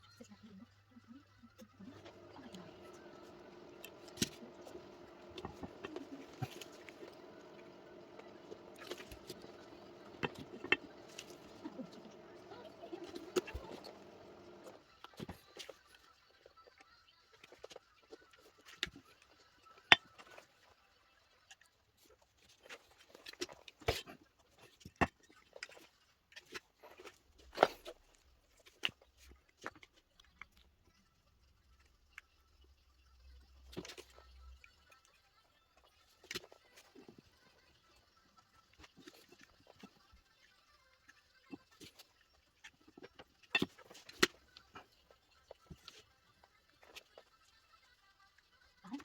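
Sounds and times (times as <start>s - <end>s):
steady low hum: 1.8s - 14.8s.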